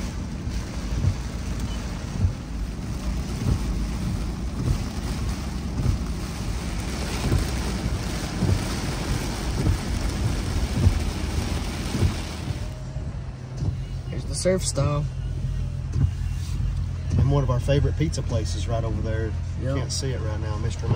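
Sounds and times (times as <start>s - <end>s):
steady rain: 0.0s - 20.9s
tyre noise on wet road: 0.0s - 20.9s
dull low thump: 0.6s - 12.8s, 13.5s - 14.0s.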